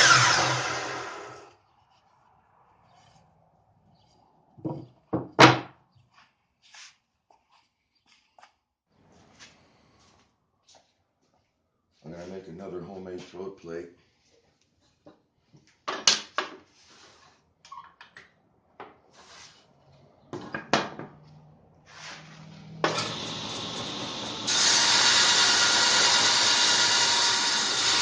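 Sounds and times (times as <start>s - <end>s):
table saw running: 0.0s - 1.5s, 22.8s - 28.0s
wood and tools clattering: 4.6s - 5.8s, 20.3s - 21.4s, 22.0s - 28.0s.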